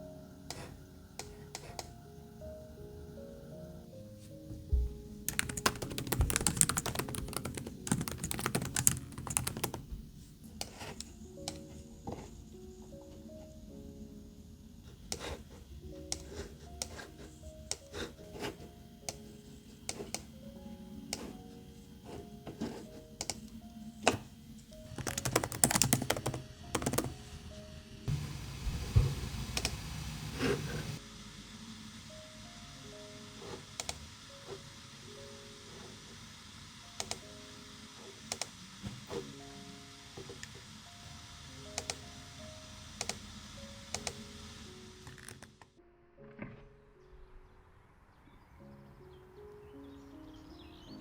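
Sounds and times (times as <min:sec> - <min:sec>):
faint background music: 0:00.0 - 0:51.0
keyboard typing: 0:05.3 - 0:10.0, 0:24.9 - 0:27.2.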